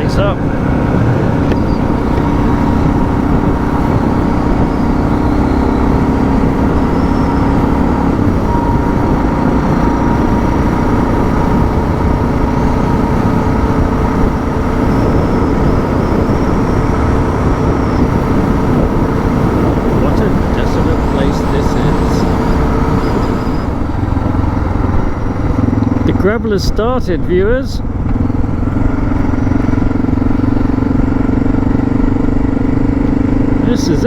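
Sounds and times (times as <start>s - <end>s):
motorcycle engine cruising: 0.0s - 34.0s
wind and road noise: 0.0s - 34.0s.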